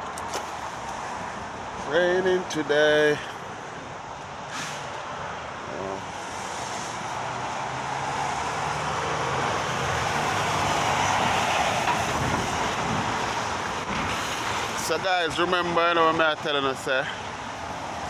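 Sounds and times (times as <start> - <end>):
tyres hissing on wet road: 4.4 - 5.0, 6.1 - 15.0.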